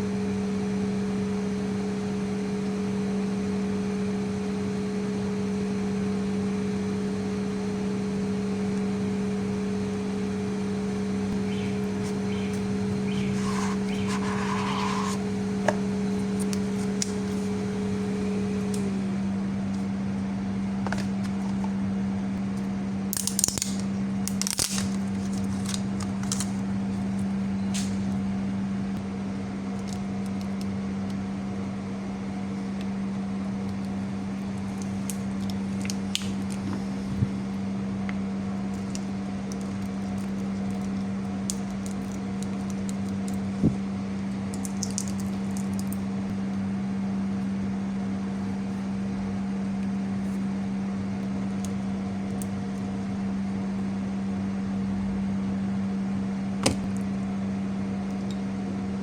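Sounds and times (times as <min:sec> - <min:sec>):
machine hum droning: 0:00.0 - 0:59.0
short high scrapes: 0:13.2 - 0:15.2.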